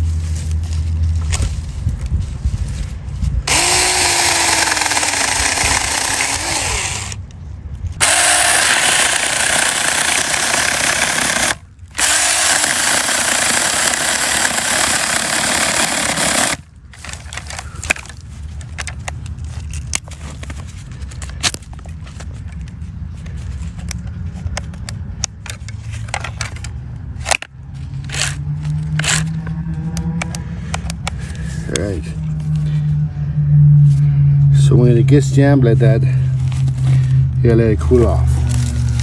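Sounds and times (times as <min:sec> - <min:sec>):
electric chainsaw cutting branch: 0:03.5 - 0:07.2, 0:08.0 - 0:16.6, 0:28.1 - 0:29.4.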